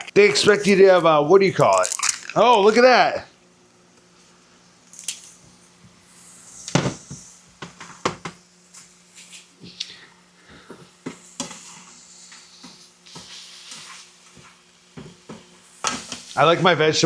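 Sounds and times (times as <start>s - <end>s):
faint steady hum: 0.0s - 17.0s
utensil scraping a frying pan: 11.3s - 14.6s.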